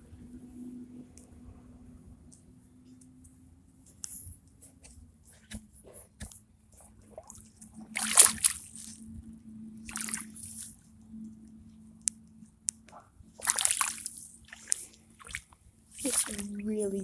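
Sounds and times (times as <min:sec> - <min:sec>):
footsteps squelching through mud: 0:08.0 - 0:09.0, 0:09.9 - 0:10.7, 0:13.4 - 0:17.0.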